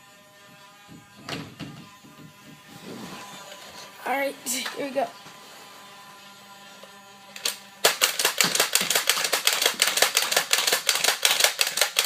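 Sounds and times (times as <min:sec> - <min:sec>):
toy dart blaster firing rapidly: 0:01.1 - 0:02.7, 0:07.3 - 0:12.0.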